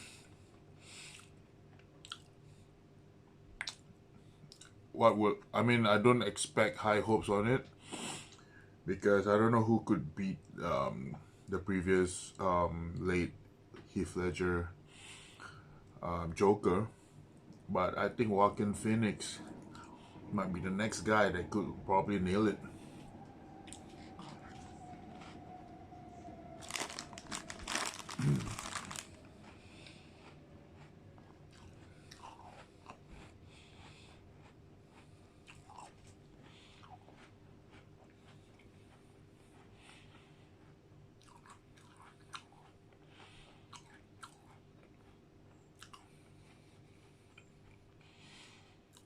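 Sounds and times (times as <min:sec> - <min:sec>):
close-up chewing: 0:01.0 - 0:02.4, 0:15.3 - 0:25.7, 0:26.6 - 0:49.0
sharp crunches or mouth clicks: 0:02.0 - 0:02.3, 0:03.6 - 0:03.9, 0:26.6 - 0:33.3
food packaging crinkling: 0:26.6 - 0:30.0
short vocal sound: 0:28.2 - 0:28.6.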